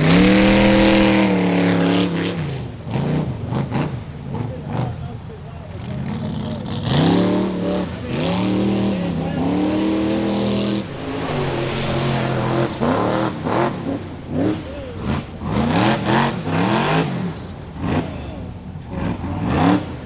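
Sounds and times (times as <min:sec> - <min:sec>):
buggy engine revving: 0:00.0 - 0:01.9.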